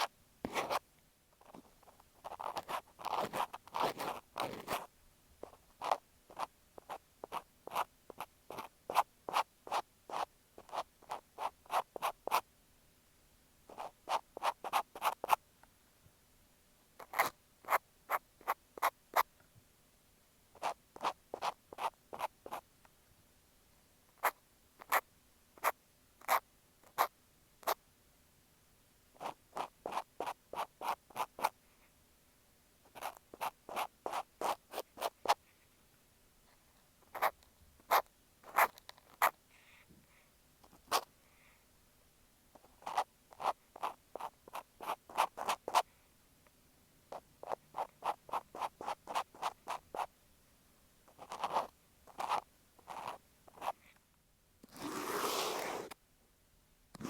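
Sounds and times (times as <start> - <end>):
cotton swab scratching microphone: 0.0 - 0.8, 1.4 - 12.4, 13.7 - 15.4, 17.0 - 19.3, 20.6 - 22.6, 29.2 - 31.6, 32.9 - 35.4, 37.0 - 39.4, 40.6 - 41.1, 42.6 - 45.9, 47.1 - 50.1, 51.1 - 54.0, 54.6 - 56.0.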